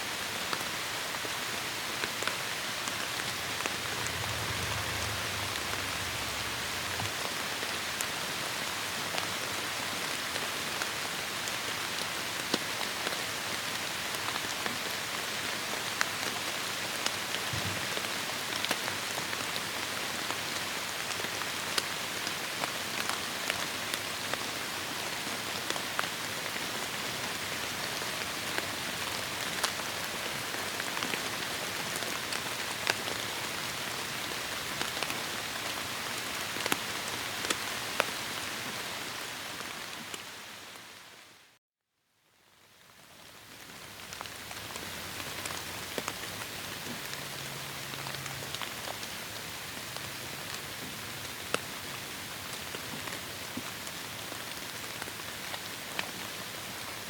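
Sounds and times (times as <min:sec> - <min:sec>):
heavy rain on foliage: 0:00.0 - 0:41.6, 0:42.4 - 0:57.0.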